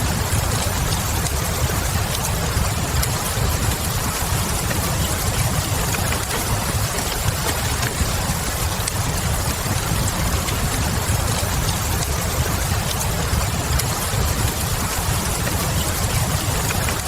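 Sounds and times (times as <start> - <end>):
faint wood fire crackles: 0.0 - 17.0
steady rain falling: 0.0 - 17.0.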